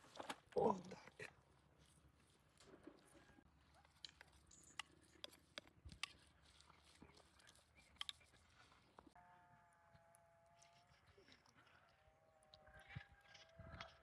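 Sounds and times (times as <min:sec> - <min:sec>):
faint animal call: 0:09.1 - 0:14.0.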